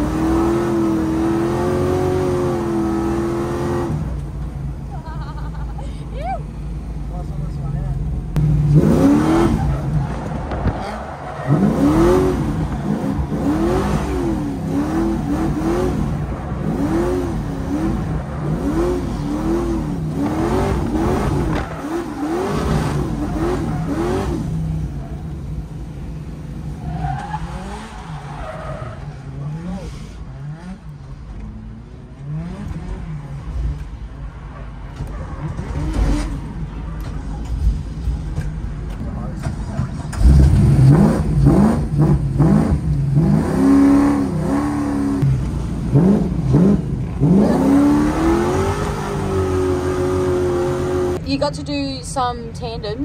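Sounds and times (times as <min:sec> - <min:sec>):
car engine revving: 0:00.0 - 0:05.6, 0:06.6 - 0:52.9
tyres skidding on wet track: 0:26.7 - 0:30.2.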